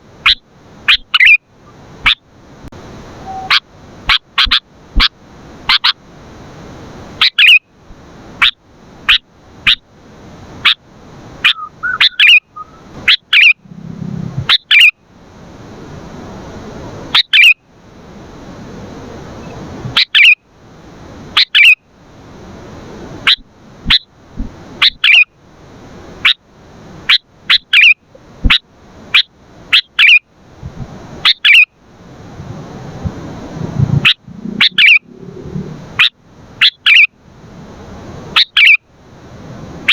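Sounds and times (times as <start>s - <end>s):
bird chirping: 0.3s - 1.4s, 3.2s - 4.6s, 11.4s - 13.9s, 14.5s - 14.9s, 17.2s - 17.6s, 19.4s - 20.4s, 21.4s - 21.8s, 24.8s - 25.3s, 31.2s - 31.7s, 34.0s - 37.1s, 38.4s - 38.8s.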